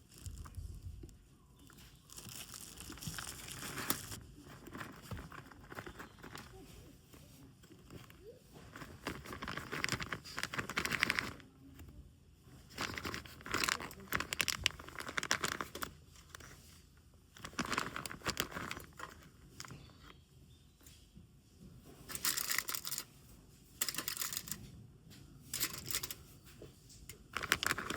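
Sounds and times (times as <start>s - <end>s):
packaging crinkling and rustling: 0.0s - 11.9s, 12.6s - 20.2s, 22.0s - 23.1s, 25.6s - 26.3s, 27.2s - 27.9s.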